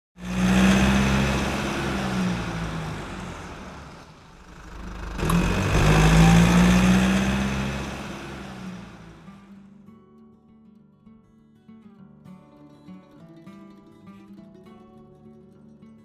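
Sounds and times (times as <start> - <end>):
car engine: 0.2 - 9.5.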